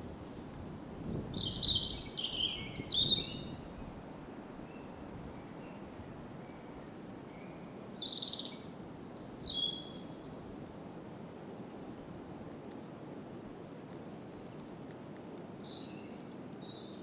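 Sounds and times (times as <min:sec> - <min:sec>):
wind through branches: 0:00.0 - 0:17.0
songbird singing: 0:01.2 - 0:03.6, 0:07.3 - 0:10.9, 0:14.8 - 0:17.0.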